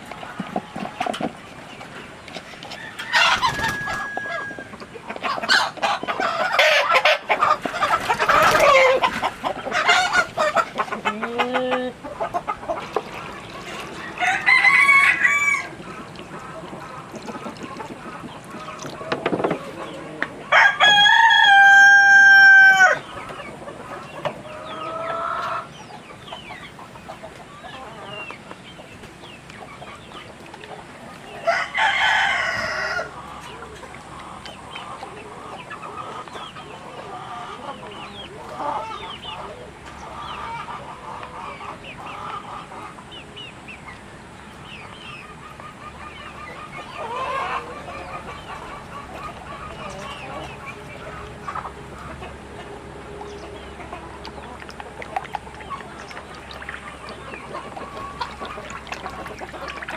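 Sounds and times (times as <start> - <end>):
hens clucking softly: 0.0 - 59.9
rooster crowing: 2.8 - 4.8, 14.2 - 15.7, 20.5 - 23.0, 31.4 - 33.1.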